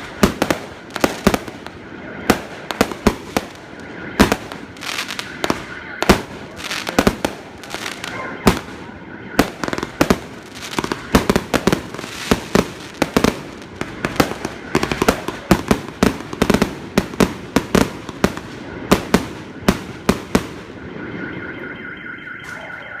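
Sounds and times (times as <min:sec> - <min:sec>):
fireworks bangs: 0:00.0 - 0:21.7
steady high tone: 0:01.7 - 0:12.9, 0:20.7 - 0:23.0.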